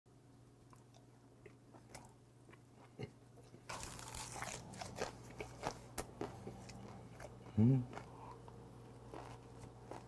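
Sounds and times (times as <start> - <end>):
chewing with wet smacks: 0.7 - 8.3, 9.1 - 10.0
crackly chewing: 0.7 - 10.0.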